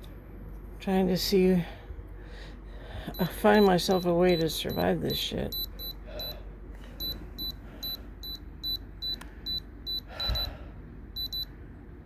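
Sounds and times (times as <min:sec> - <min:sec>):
short high electronic beeps: 0:11.2 - 0:11.4.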